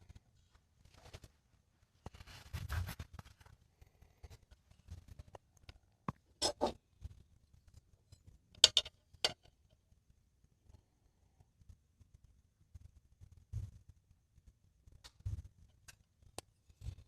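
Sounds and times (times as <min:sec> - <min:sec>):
knocks and scrapes of objects: 0:02.0 - 0:09.5.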